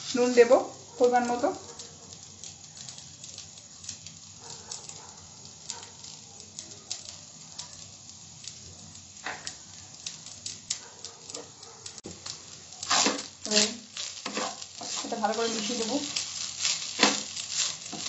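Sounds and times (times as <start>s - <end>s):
rice sizzling in oil: 0.0s - 18.0s
sharp popping of oil: 9.2s - 14.6s.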